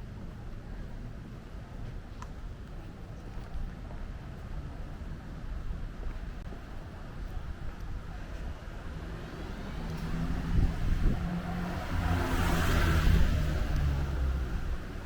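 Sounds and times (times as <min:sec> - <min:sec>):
motor vehicle passing by: 0:08.8 - 0:15.0.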